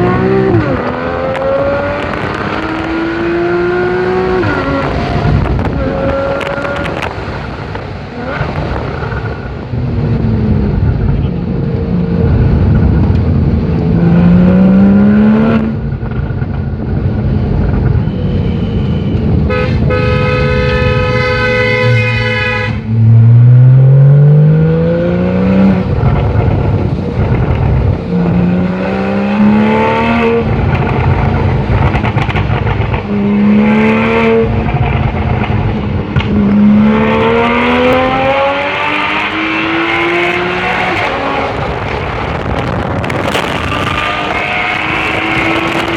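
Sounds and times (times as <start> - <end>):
car engine accelerating hard: 0.0 - 17.9, 19.2 - 45.9
steady horn-like tone: 18.0 - 23.5.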